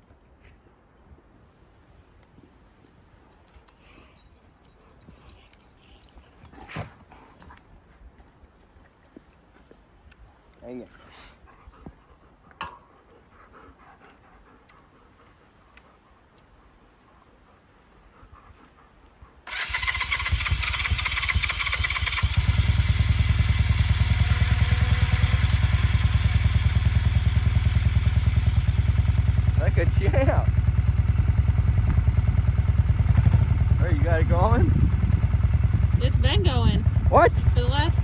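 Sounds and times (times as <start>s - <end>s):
motorcycle engine starting and idling: 19.5s - 38.0s.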